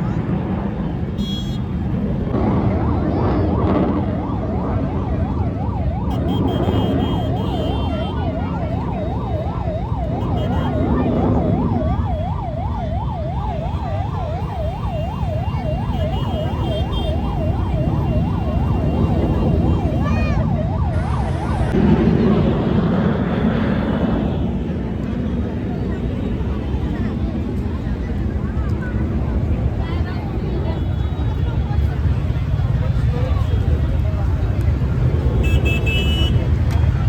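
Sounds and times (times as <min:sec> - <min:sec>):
low rumble of traffic: 0:00.0 - 0:37.0
siren yelping: 0:02.6 - 0:21.8.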